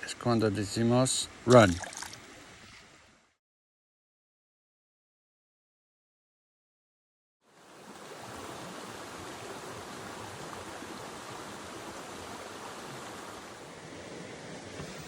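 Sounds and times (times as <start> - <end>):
creek water rushing: 0.2 - 3.2, 7.4 - 15.0.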